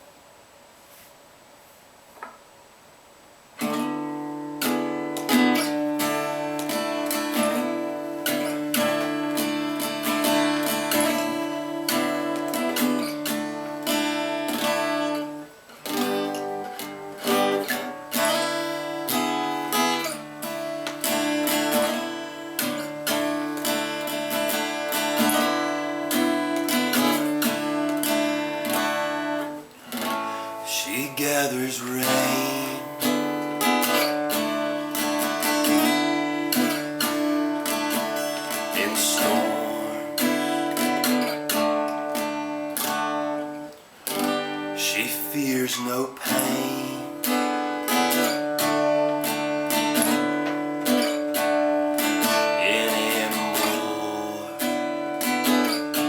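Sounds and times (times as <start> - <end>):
acoustic guitar strumming: 3.6 - 56.0.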